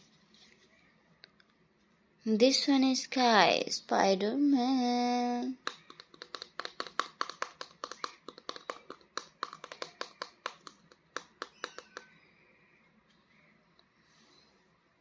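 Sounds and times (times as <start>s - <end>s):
toy packaging crackling: 5.6s - 12.0s.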